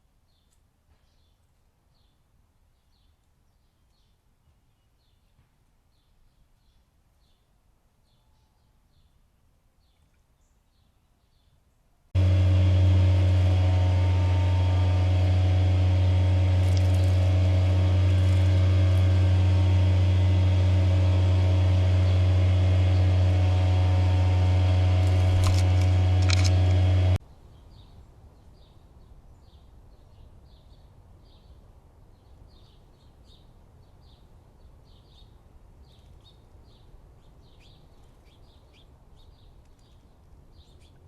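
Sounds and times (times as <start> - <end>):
low machine hum: 12.2 - 27.2.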